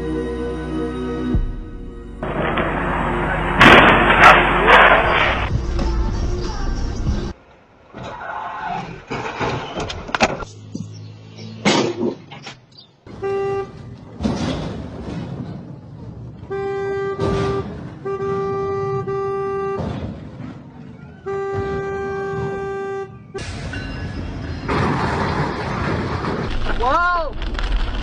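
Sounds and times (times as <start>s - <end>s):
vehicle horn honking: 13.1s - 14.0s, 16.5s - 20.0s, 21.2s - 23.5s.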